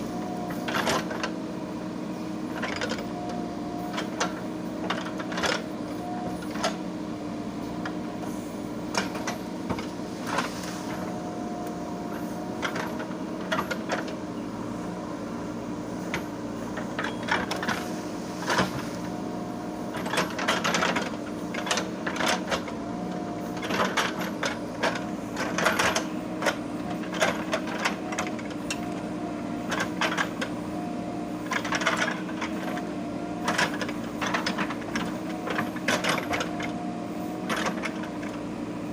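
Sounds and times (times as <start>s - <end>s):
diesel engine humming: 0.0s - 38.9s
machine clanks and knocks: 19.9s - 22.7s, 23.5s - 29.0s, 33.4s - 36.7s, 37.4s - 38.4s.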